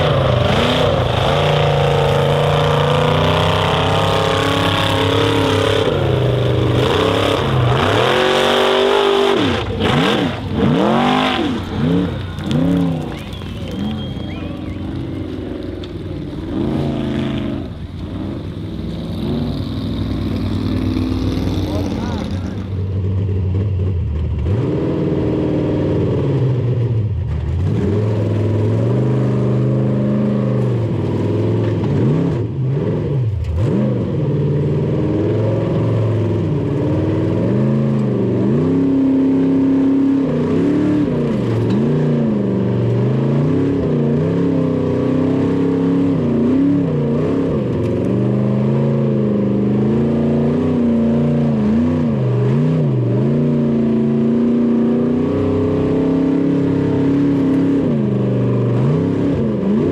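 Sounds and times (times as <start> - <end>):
racing car engine revving: 0.0 - 59.9.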